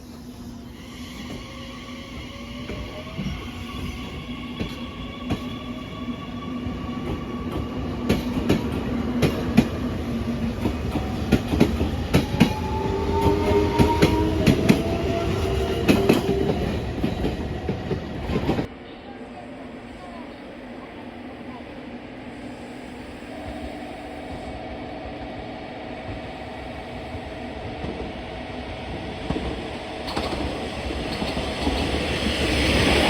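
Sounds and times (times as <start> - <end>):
train wheels clicking over rail joints: 29.3 - 32.2.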